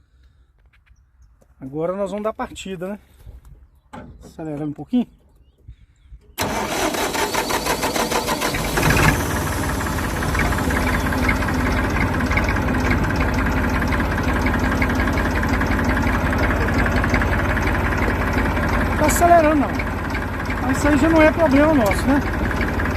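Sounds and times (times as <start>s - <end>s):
diesel engine idling: 6.4s - 22.9s
starter motor cranking: 6.4s - 22.9s.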